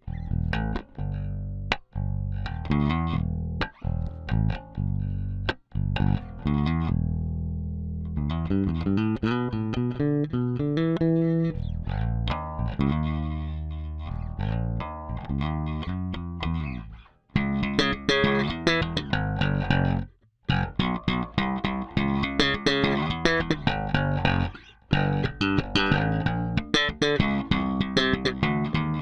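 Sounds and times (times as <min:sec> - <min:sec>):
electric bass plucked notes: 0:00.0 - 0:29.0.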